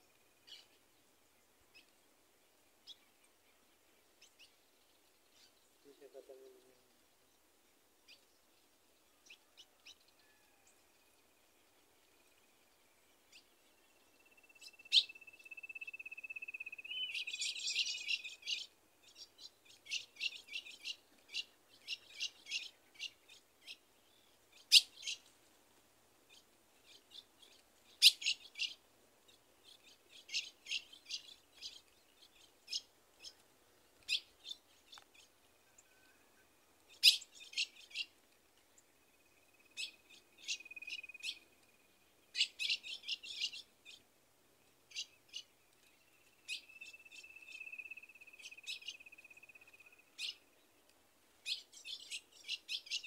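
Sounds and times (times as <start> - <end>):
songbirds chirping and trilling: 0.0 - 53.0.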